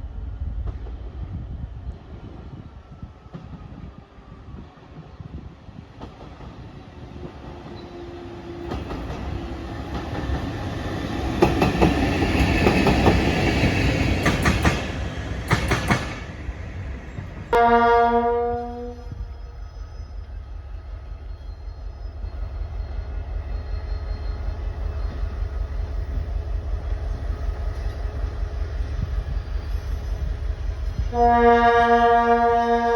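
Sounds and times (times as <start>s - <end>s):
train rolling past: 0.0s - 32.9s
locomotive horn: 17.6s - 19.3s, 31.1s - 32.9s.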